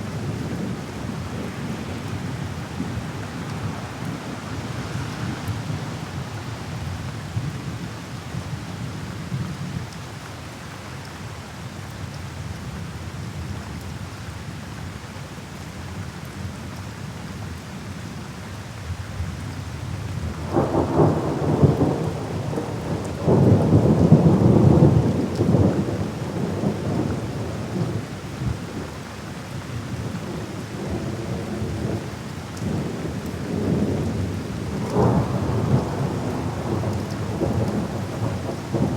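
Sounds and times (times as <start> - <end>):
rain falling: 0.0 - 38.9
crackling thunder rolls: 20.1 - 29.0, 29.9 - 38.9
thunder rumbling: 20.4 - 28.0, 32.7 - 38.9.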